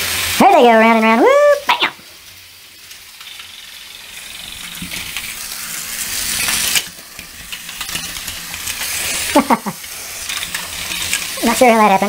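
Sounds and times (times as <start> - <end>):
toy train motors whirring: 0.0 - 12.0
toy train wheels clattering: 2.8 - 12.0.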